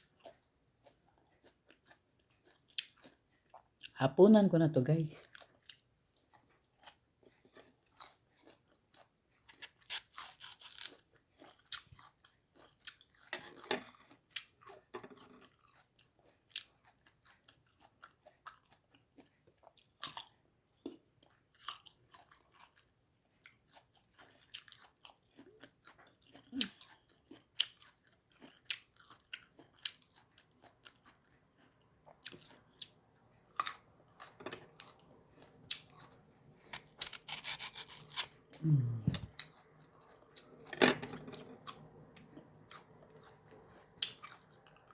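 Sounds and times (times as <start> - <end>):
crunchy biting and chewing: 0.0 - 3.9, 5.2 - 40.8, 41.4 - 44.9.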